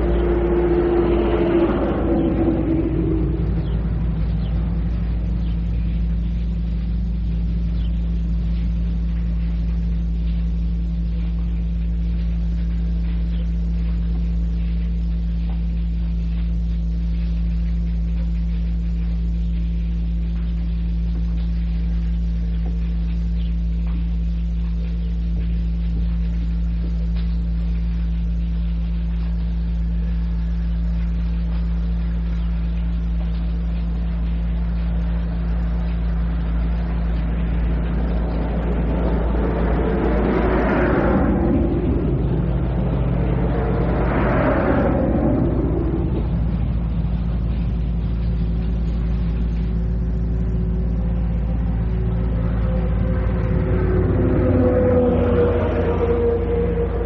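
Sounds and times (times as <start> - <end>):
steady low hum: 0.0 - 57.0
tape hiss: 0.0 - 57.0
faint ticks: 7.8 - 35.0.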